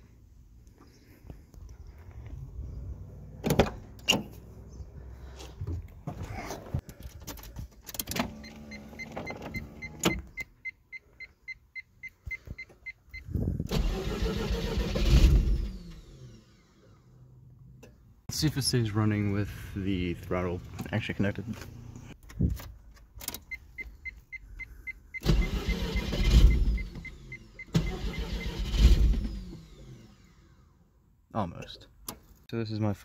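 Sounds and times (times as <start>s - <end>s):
engine cranking and firing: 13.6s - 17.2s, 25.2s - 30.8s
rapid electronic warning beep: 23.5s - 28.5s.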